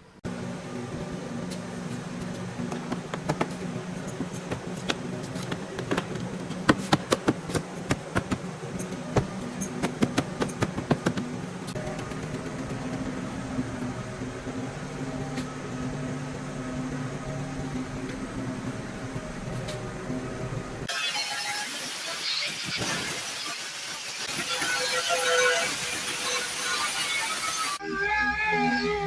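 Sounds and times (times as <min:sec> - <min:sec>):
steady low hum: 0:00.0 - 0:20.9
sharp irregular taps and knocks: 0:02.7 - 0:03.6, 0:04.2 - 0:08.4, 0:09.2 - 0:11.3.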